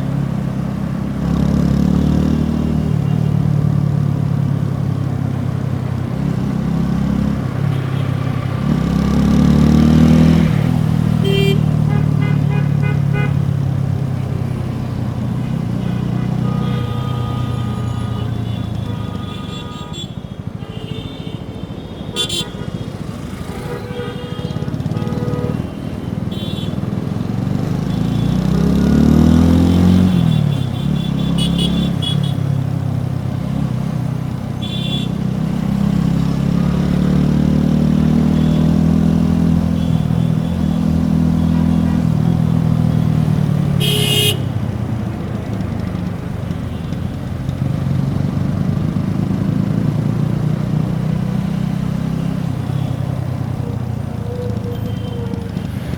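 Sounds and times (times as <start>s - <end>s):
motorcycle engine revving: 0.0s - 20.0s, 22.1s - 55.9s
vehicle horns honking: 2.2s - 3.4s, 7.5s - 9.0s, 10.4s - 14.4s, 15.2s - 27.0s, 27.8s - 32.8s, 34.6s - 35.3s, 37.9s - 44.8s, 52.2s - 53.4s.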